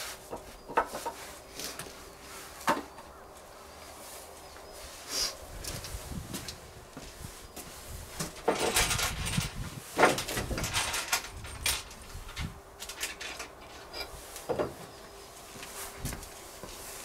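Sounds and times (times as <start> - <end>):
objects knocking and clattering: 8.2 - 13.8.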